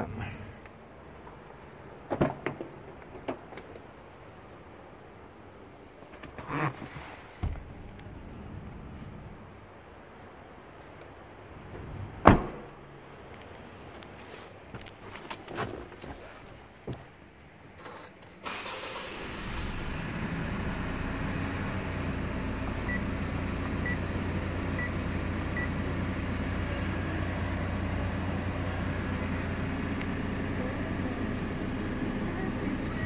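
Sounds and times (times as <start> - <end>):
car engine starting and idling: 7.4 - 9.7, 17.8 - 33.0.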